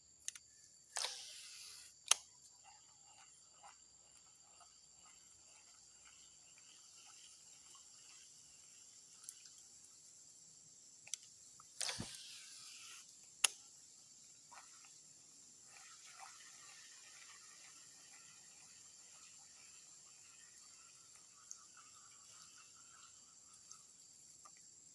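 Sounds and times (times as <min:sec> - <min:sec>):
sharp clicks: 0:00.2 - 0:02.3
high insect drone: 0:00.5 - 0:24.9.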